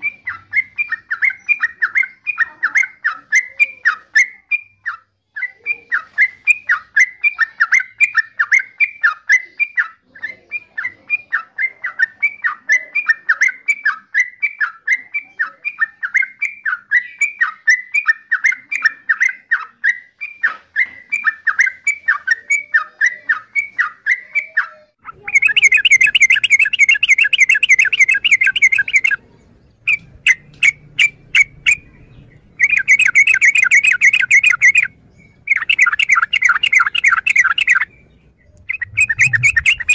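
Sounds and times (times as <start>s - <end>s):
bird calling bubbly notes: 25.0s - 29.2s, 32.6s - 39.9s.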